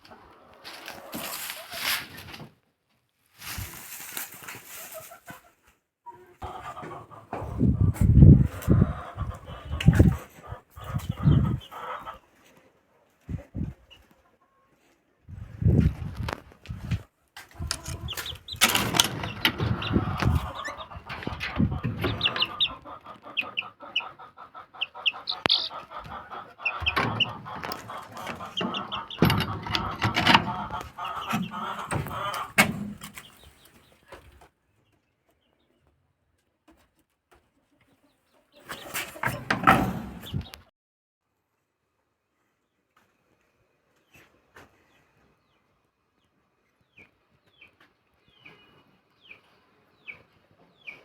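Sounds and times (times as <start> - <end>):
birds chirping and chattering: 8.7 - 12.1, 17.6 - 35.9.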